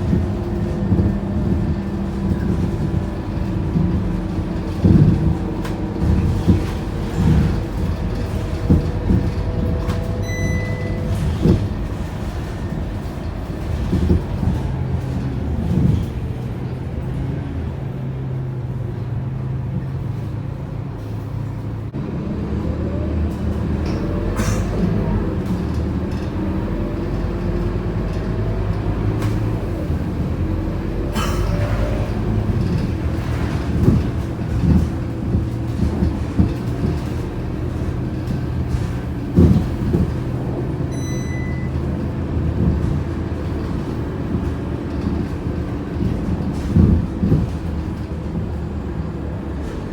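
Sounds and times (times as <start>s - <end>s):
body rattles and knocks: 0.0s - 16.6s, 32.1s - 48.4s
bus diesel engine: 0.0s - 49.9s
short electronic beep: 10.2s - 11.2s, 40.9s - 41.8s.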